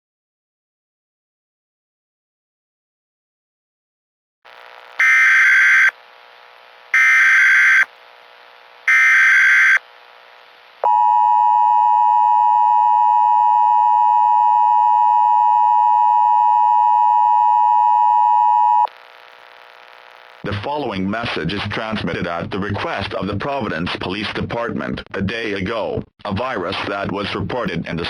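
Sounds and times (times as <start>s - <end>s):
data-header bursts: 5.0s - 6.0s, 7.0s - 7.9s, 8.9s - 9.8s
steady attention tone: 5.0s - 6.0s, 7.0s - 7.9s, 8.9s - 9.8s.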